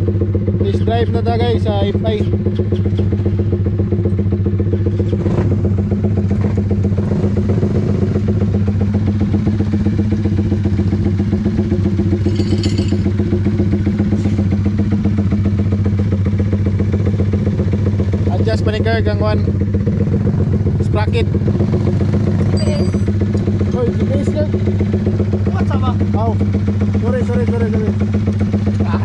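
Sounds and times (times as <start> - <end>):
motorcycle engine idling loudly: 0.0 - 29.0.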